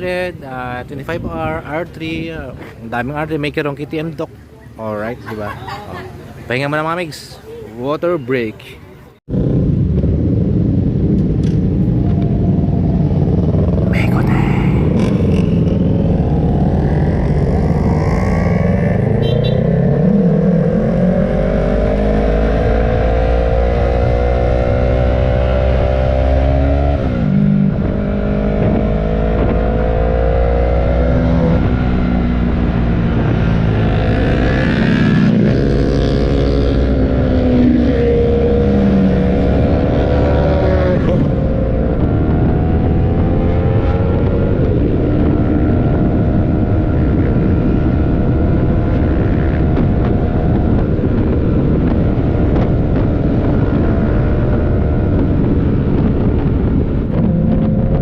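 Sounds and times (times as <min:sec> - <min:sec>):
low wind rumble: 0:00.0 - 0:04.5, 0:09.2 - 0:58.0
motorcycle engine revving through gears: 0:14.9 - 0:58.0.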